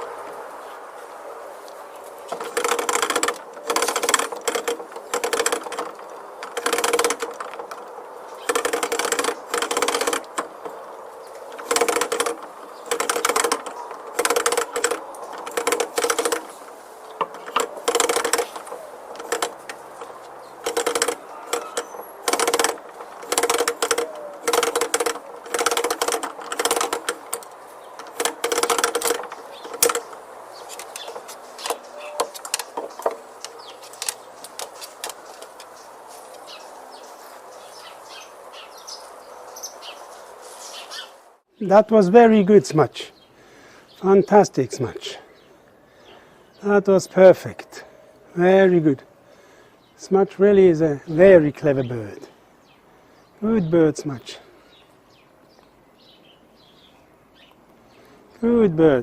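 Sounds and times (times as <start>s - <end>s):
small locks rattling and clicking: 2.2s - 36.6s.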